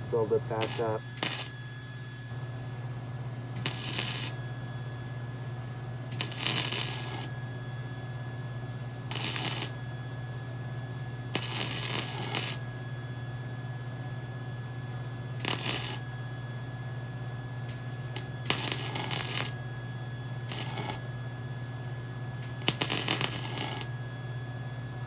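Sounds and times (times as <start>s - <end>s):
steady low hum: 0.0s - 25.0s
crackling welding arc: 0.1s - 1.6s, 3.6s - 4.5s, 6.1s - 7.4s, 9.1s - 9.8s, 11.3s - 12.7s, 15.4s - 16.1s, 18.2s - 19.6s, 20.4s - 21.0s, 22.4s - 24.2s.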